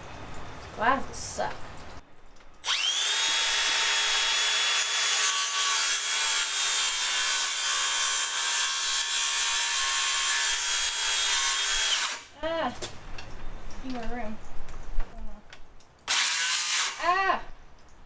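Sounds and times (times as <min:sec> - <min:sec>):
power saw cutting wood: 0:02.6 - 0:12.3, 0:16.1 - 0:17.0.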